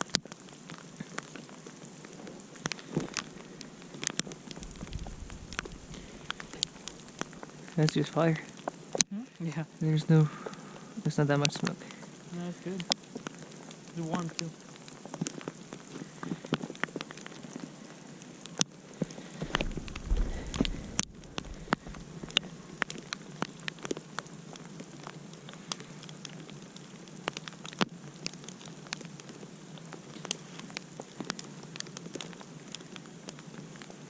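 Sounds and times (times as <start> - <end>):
campfire crackling and popping: 0.0 - 34.0
brief low rumble: 4.6 - 6.7.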